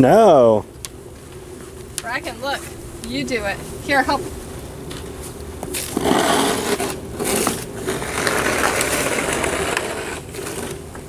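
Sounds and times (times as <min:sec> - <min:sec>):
snow shovel scraping snow: 0:05.2 - 0:10.8.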